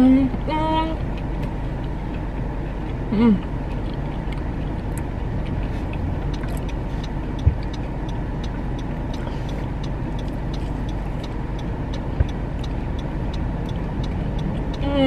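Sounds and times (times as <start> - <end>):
car cabin low hum: 0.0 - 15.0
light even ticking: 0.0 - 15.0.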